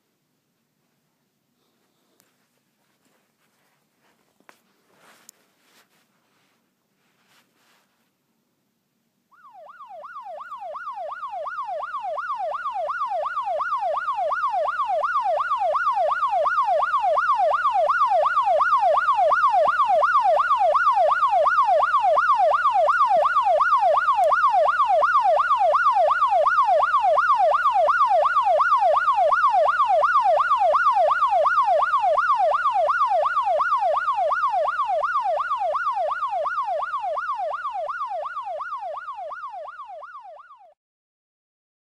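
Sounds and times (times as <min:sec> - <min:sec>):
electronic siren yelping: 0:09.4 - 0:40.7.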